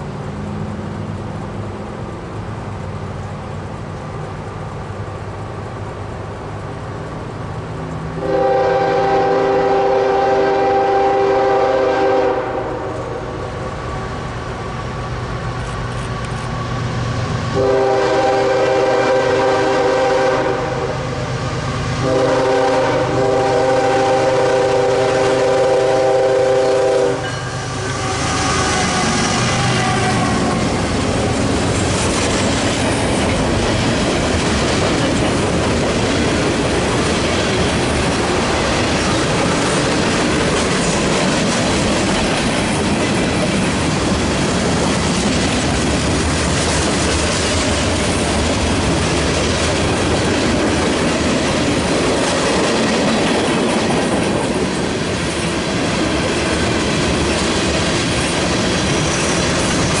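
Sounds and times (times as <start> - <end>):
freight train wheels clattering: 14.1 - 60.0.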